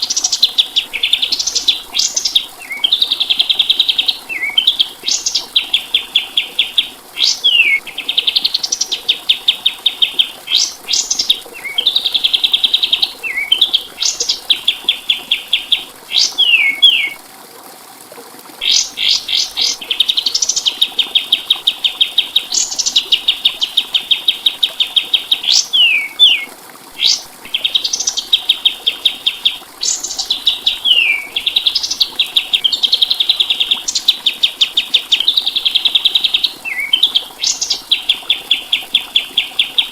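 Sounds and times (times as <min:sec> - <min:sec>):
songbird trilling and whistling: 0:00.1 - 0:17.2, 0:18.6 - 0:39.8.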